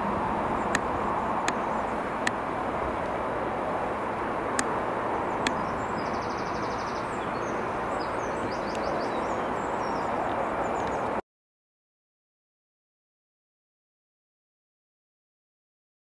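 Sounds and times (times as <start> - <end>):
train rushing noise: 0.0 - 6.0.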